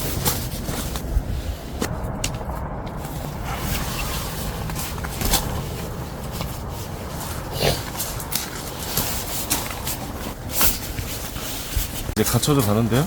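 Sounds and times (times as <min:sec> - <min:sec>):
steady low rumbling: 0:00.0 - 0:13.0.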